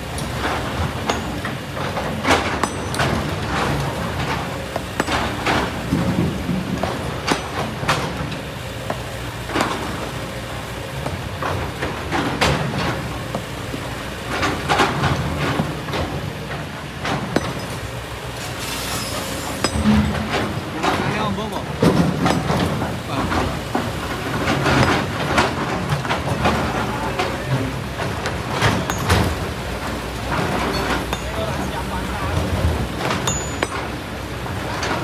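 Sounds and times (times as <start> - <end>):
excavator diesel engine running: 0.0 - 35.0
stones and sand clattering: 14.3 - 35.0.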